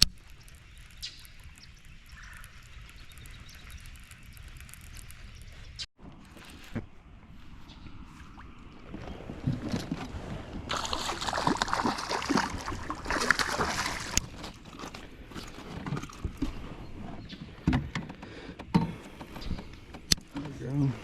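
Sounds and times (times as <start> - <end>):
water splashing against kayak: 8.1 - 17.1.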